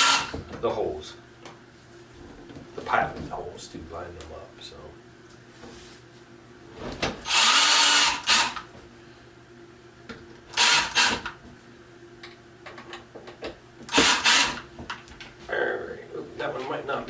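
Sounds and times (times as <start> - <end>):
power drill driving screws: 0.0 - 0.4, 7.2 - 8.7, 10.5 - 11.3, 13.9 - 14.7.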